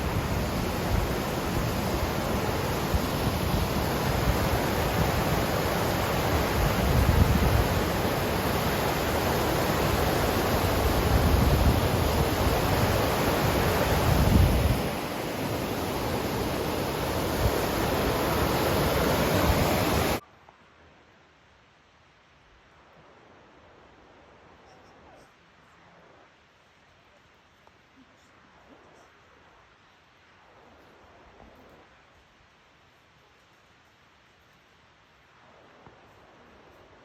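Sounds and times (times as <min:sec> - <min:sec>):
rushing water: 0:00.0 - 0:20.2
wind buffeting microphone: 0:00.0 - 0:20.2.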